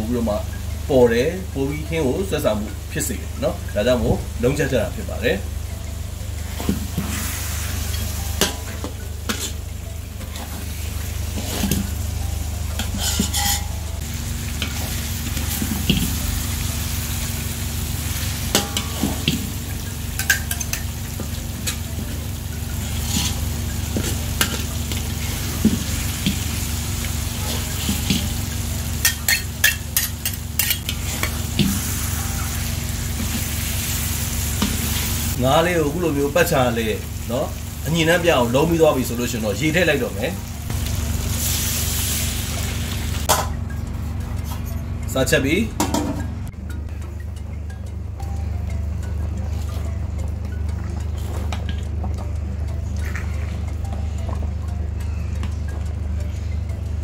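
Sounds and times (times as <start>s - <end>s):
fish frying sizzle: 0.0s - 44.4s, 46.6s - 57.0s
low hum: 2.6s - 35.4s, 40.4s - 57.0s
higher hum: 2.7s - 35.5s
metal utensils scraping a pot: 6.5s - 10.6s, 11.2s - 11.9s, 12.7s - 13.9s, 22.8s - 26.4s, 29.0s - 32.6s.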